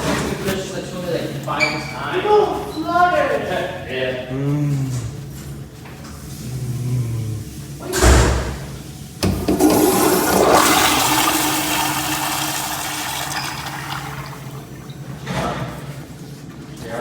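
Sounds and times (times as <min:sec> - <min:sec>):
toilet water rushing: 0:07.6 - 0:15.3.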